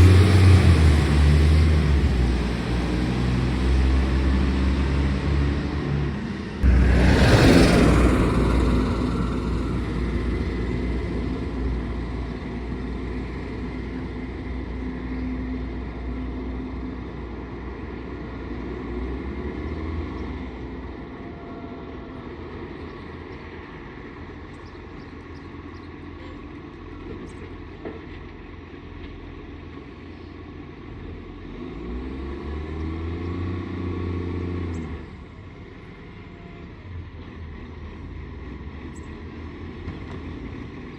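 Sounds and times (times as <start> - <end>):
garbage truck diesel engine: 0.0 - 40.9.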